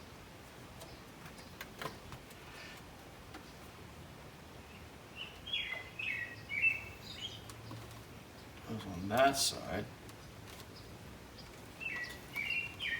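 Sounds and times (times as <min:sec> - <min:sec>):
small bird chirping: 0:04.6 - 0:09.2, 0:10.1 - 0:12.9.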